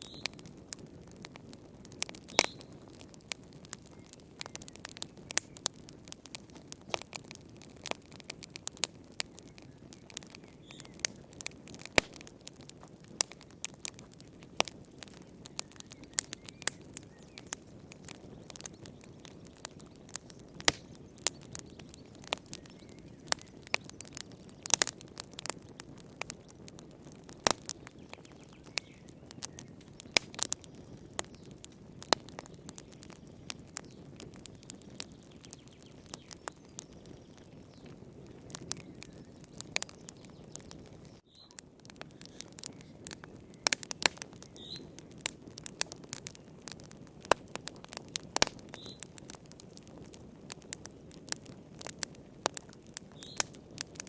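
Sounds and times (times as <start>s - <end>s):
wood fire crackling: 0.0s - 54.0s
low rush of flame: 36.3s - 54.0s.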